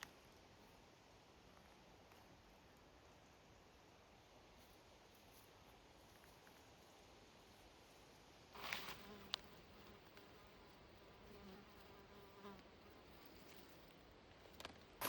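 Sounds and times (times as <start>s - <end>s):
insect buzzing faintly: 0.0s - 15.0s
brief rustle: 8.6s - 9.5s.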